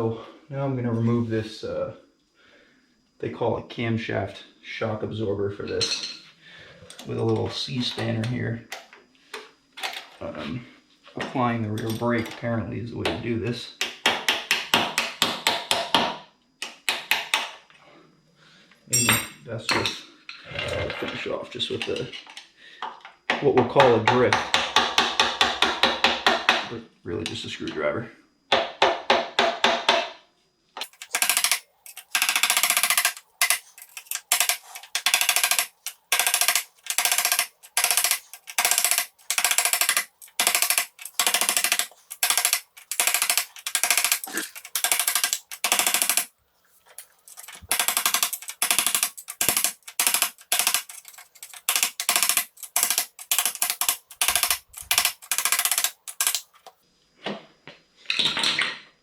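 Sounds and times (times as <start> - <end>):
hammer striking metal screwdriver: 47.3 - 56.4.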